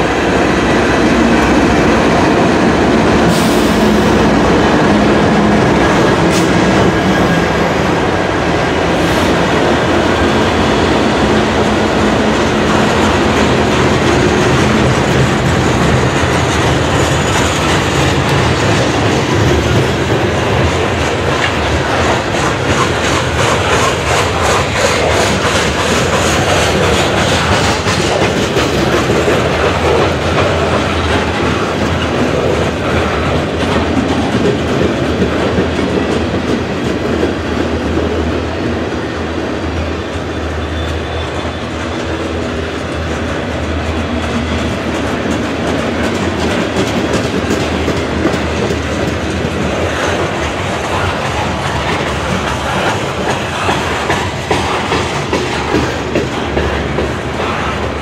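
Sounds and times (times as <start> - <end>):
train wheels clacking over rail joints: 0.0 - 39.0, 39.7 - 58.0
diesel locomotives passing: 0.0 - 58.0.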